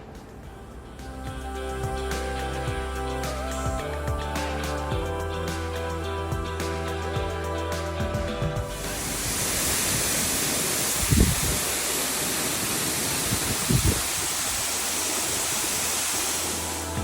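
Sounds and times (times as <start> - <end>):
low thumps: 8.0 - 9.4
waterfall rushing: 8.7 - 17.0.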